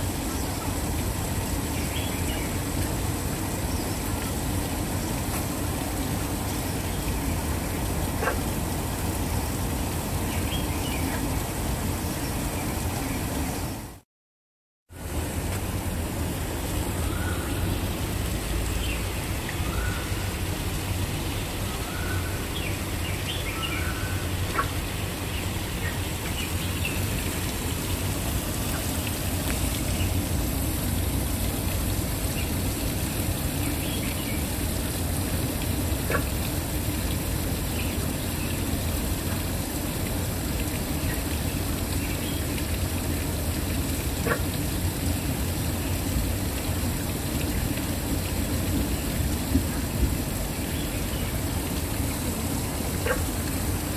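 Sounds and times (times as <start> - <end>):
waterfall rushing: 0.0 - 14.0, 14.9 - 53.9
bird calling: 21.7 - 24.8.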